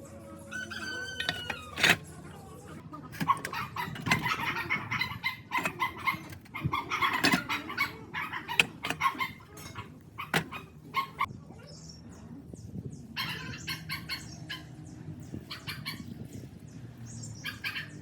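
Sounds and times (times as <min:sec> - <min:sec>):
chickens clucking: 0:00.5 - 0:11.3
sharp clicks and knocks: 0:03.2 - 0:07.8, 0:08.5 - 0:10.6.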